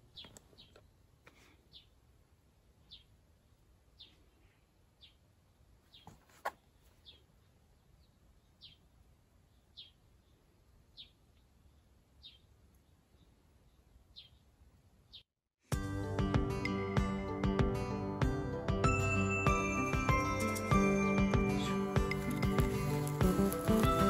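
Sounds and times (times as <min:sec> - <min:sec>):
bird chirping: 0:00.0 - 0:01.0, 0:02.8 - 0:15.3.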